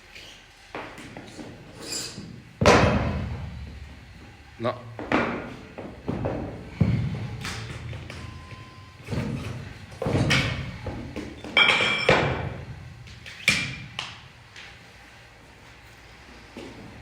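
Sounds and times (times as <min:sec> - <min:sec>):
gym weights thudding on floor: 0:02.6 - 0:03.6, 0:05.0 - 0:08.3.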